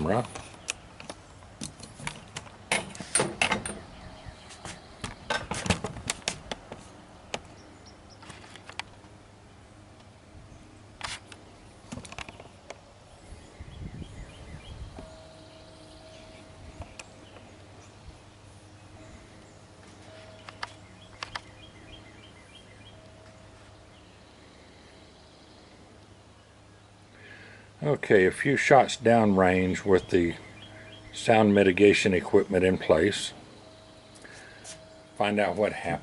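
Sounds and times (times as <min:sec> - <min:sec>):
faint steady tone: 0:14.2 - 0:36.0.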